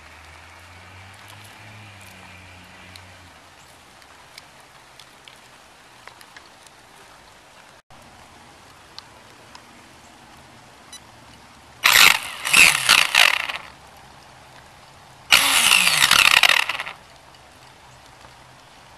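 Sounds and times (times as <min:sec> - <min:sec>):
electric toy truck motor whine: 0:11.8 - 0:13.7, 0:15.3 - 0:17.0.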